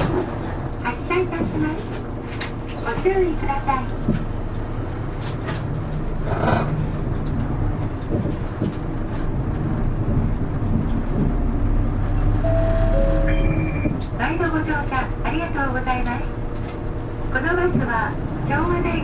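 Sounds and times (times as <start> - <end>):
bus diesel engine running: 0.0 - 19.0
electronic announcement chime: 12.4 - 14.0.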